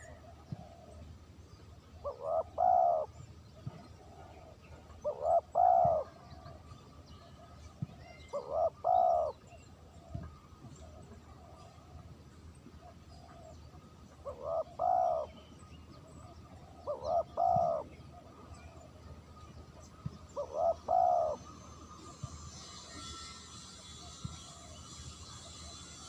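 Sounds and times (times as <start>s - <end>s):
dove cooing: 2.0s - 6.5s, 8.2s - 10.1s, 12.8s - 15.4s, 16.5s - 18.8s, 20.3s - 21.6s.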